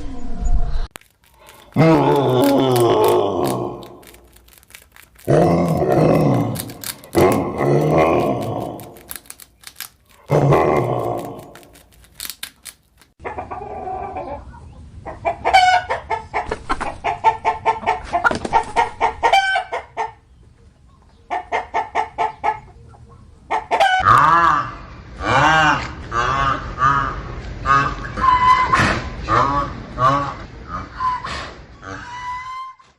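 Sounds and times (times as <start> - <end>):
chickens clucking: 13.2 - 24.1.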